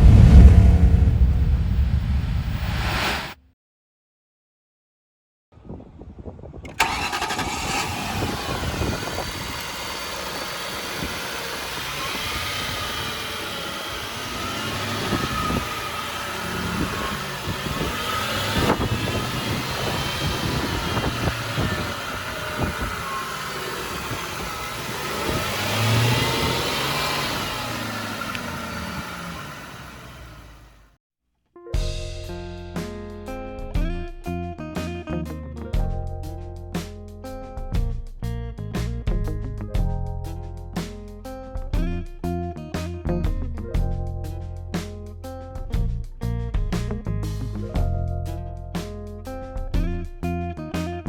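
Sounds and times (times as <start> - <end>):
car engine starting and idling: 0.0 - 2.9, 6.6 - 30.9
engine revving: 0.0 - 3.4, 6.7 - 30.9.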